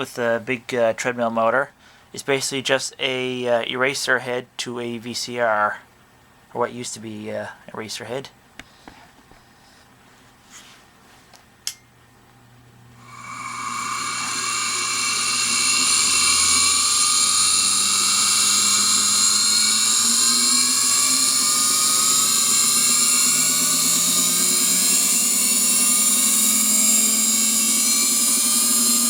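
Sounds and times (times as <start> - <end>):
motor spinning with high whine: 13.0 - 29.0.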